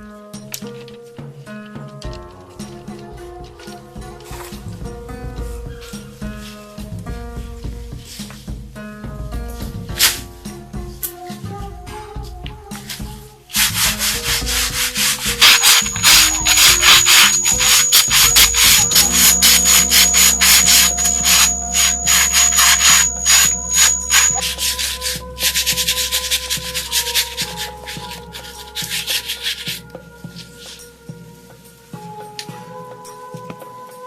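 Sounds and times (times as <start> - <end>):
scraping on hard surface: 13.6 - 29.8.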